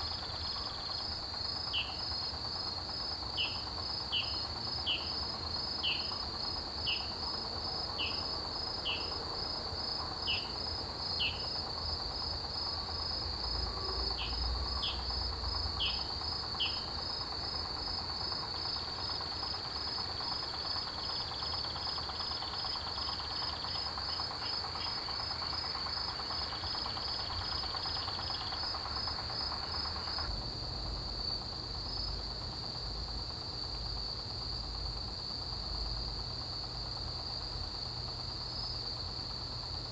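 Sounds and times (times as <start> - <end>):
insect short chirps: 0.0 - 9.2, 9.8 - 18.0
insect chorus trilling: 0.0 - 39.9.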